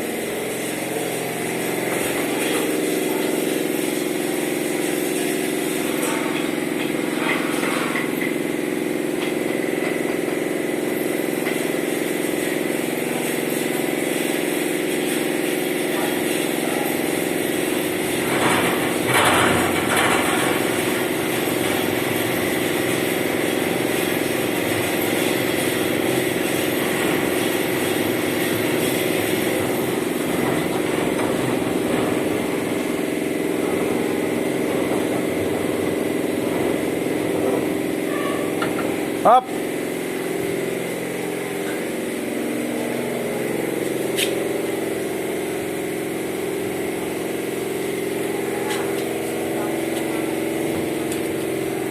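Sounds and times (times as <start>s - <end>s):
motor humming: 0.0s - 51.9s
loud clatter: 17.2s - 39.2s.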